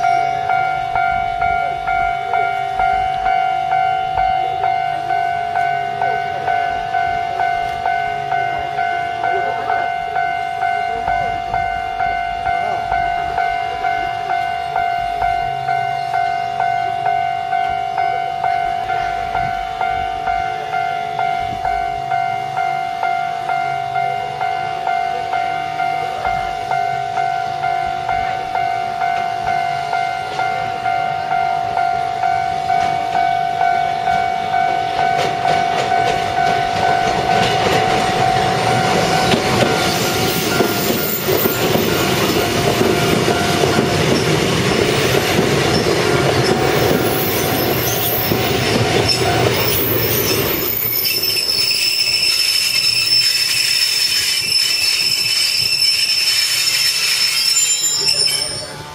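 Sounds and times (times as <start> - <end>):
level-crossing warning bell: 0.0 - 58.9
train rumbling over rails: 0.0 - 58.9
high wheel squeal: 37.5 - 58.9.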